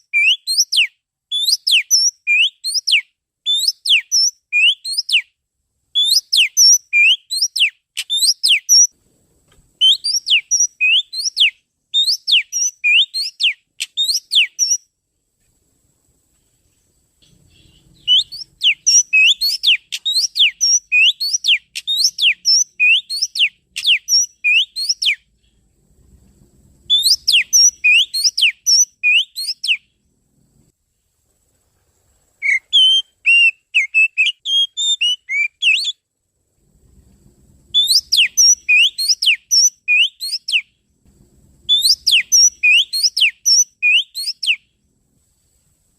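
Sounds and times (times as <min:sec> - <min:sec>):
bird whistling sharp rising notes: 0:00.2 - 0:05.2, 0:06.0 - 0:08.9, 0:09.8 - 0:14.8, 0:17.2 - 0:25.3, 0:26.9 - 0:29.8, 0:32.4 - 0:36.0, 0:37.7 - 0:40.7, 0:41.7 - 0:44.6.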